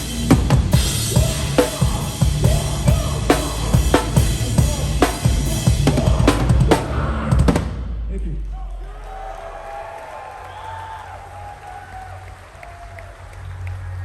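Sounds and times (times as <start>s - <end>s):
drum kit played hard: 0.0s - 7.8s
heavy band low end: 0.0s - 8.7s.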